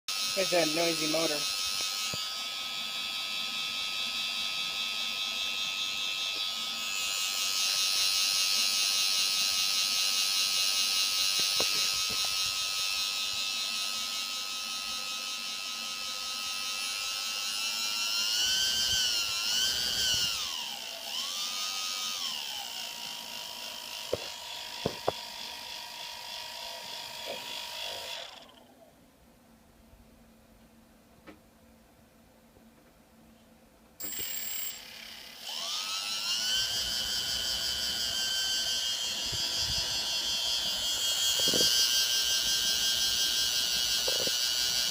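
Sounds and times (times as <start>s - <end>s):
quadcopter motor whine: 0.1s - 28.8s, 34.0s - 44.9s.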